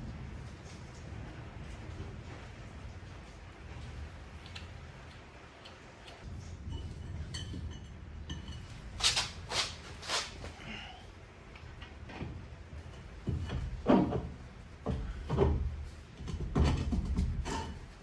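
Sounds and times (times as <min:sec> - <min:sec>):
heavy metal clunks and scrapes: 0:12.0 - 0:18.0.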